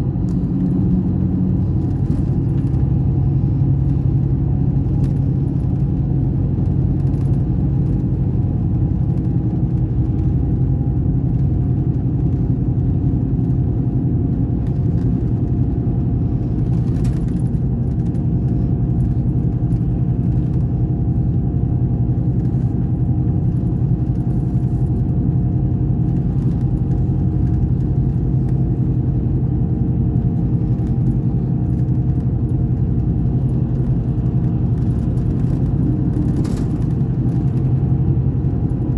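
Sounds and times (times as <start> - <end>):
diesel bus engine droning: 0.0 - 38.9.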